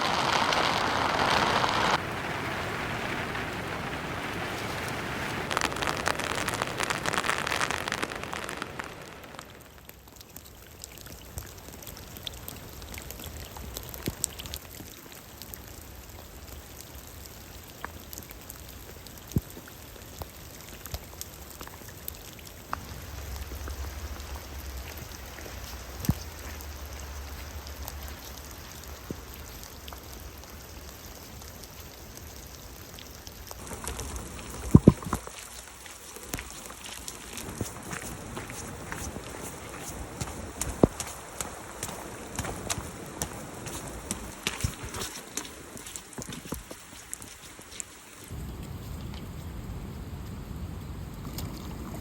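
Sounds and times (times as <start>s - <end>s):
heavy rain falling: 0.0s - 51.8s
raindrops tapping close by: 0.0s - 52.0s
low rumble: 22.8s - 29.0s.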